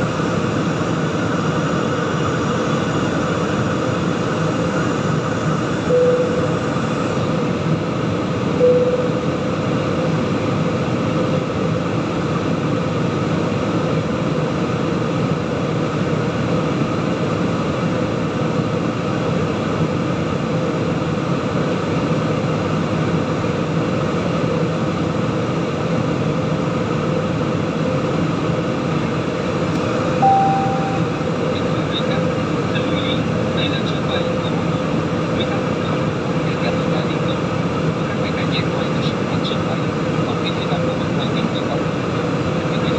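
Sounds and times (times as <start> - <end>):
airliner cabin engine and airflow: 0.0 - 42.9
brief tones: 5.9 - 6.6, 8.6 - 9.4, 30.2 - 31.4.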